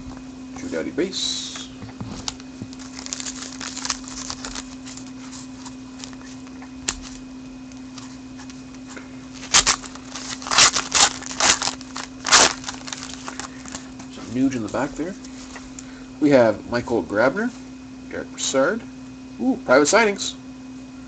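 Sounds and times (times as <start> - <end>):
steady low hum: 0.0 - 21.0
brisk card rustles: 2.0 - 15.6
trading cards sliding: 7.8 - 14.0.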